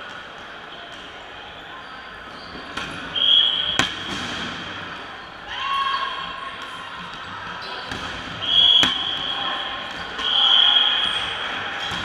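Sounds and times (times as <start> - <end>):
dodgeballs smacking: 2.6 - 5.0, 6.2 - 12.0
shouting in a hall: 5.2 - 12.0.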